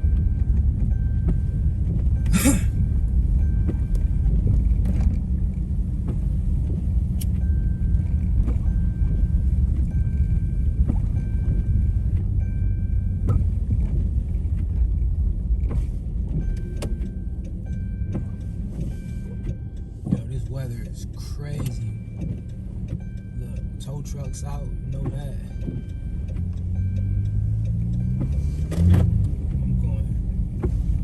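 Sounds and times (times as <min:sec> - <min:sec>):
car driving rumble from inside: 0:00.0 - 0:31.0.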